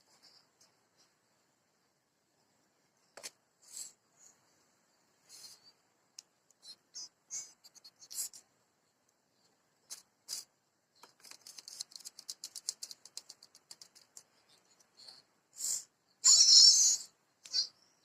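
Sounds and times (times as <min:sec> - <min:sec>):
bird rapid chattering: 0:11.0 - 0:17.8
bird high chips: 0:15.6 - 0:17.8.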